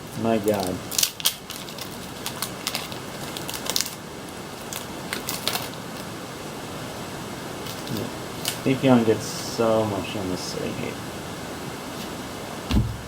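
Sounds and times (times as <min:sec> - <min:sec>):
low hiss: 0:00.0 - 0:13.0
cards rustling: 0:00.2 - 0:06.1, 0:07.6 - 0:08.7.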